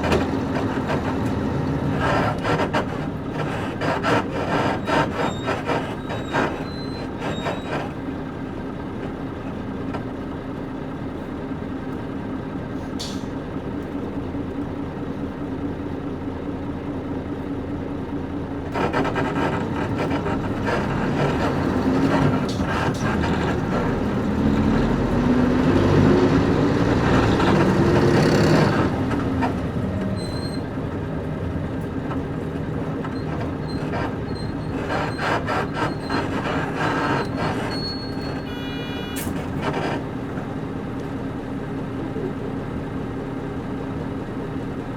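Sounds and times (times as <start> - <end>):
suspension creaks: 0.0 - 8.1, 18.7 - 40.5
bus diesel engine running: 0.0 - 44.9.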